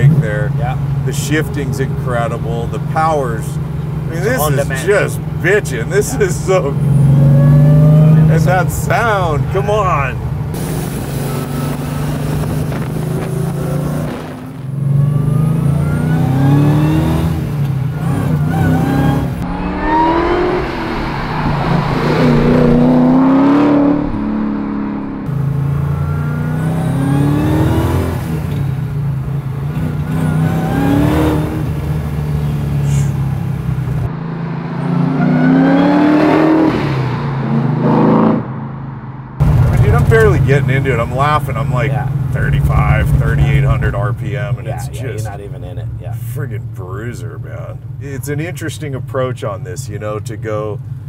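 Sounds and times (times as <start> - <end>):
car engine accelerating through gears: 6.0 - 8.8, 10.5 - 45.9.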